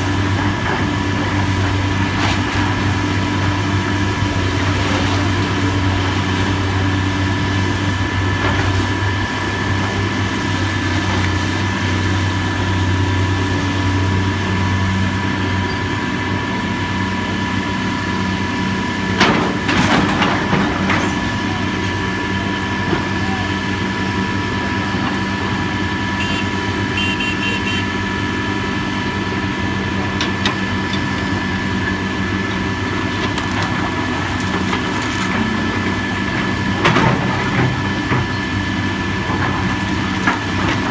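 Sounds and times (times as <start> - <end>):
heavy machinery engine running: 0.0 - 40.9.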